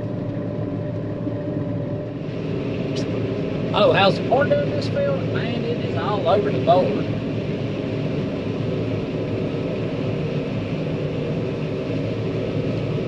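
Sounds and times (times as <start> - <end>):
combine harvester engine drone: 0.0 - 13.0.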